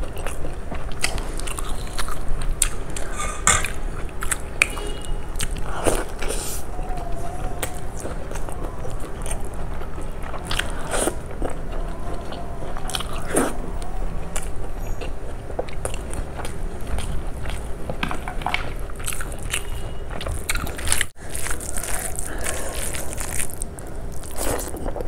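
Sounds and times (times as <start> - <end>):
wet chewing and mouth smacking: 0.0 - 25.0
crunchy bites: 5.4 - 25.0.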